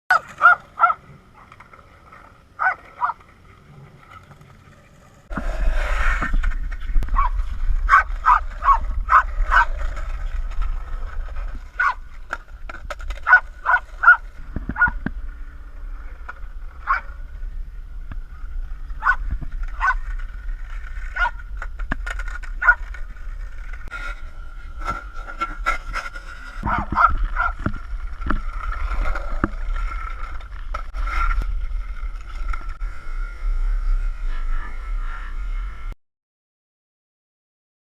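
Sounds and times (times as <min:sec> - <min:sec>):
dog barking and yipping: 0:00.1 - 0:01.0, 0:02.6 - 0:03.2, 0:07.2 - 0:09.8, 0:11.8 - 0:12.0, 0:13.2 - 0:14.2, 0:14.8 - 0:15.0, 0:16.8 - 0:17.1, 0:19.0 - 0:19.2, 0:19.8 - 0:20.0, 0:21.2 - 0:21.4, 0:22.6 - 0:22.8, 0:26.6 - 0:27.6
steady low rumble: 0:05.3 - 0:25.4.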